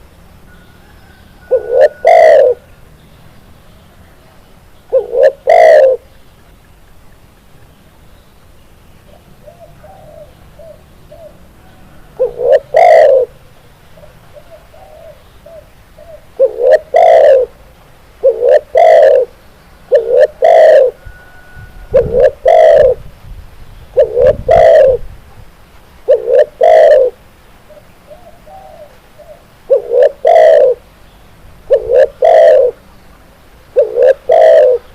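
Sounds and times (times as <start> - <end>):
dove cooing: 0.5 - 2.7, 4.9 - 6.2, 9.1 - 17.6, 18.2 - 23.0, 24.0 - 25.1, 26.1 - 30.8, 31.7 - 32.8, 33.7 - 34.9.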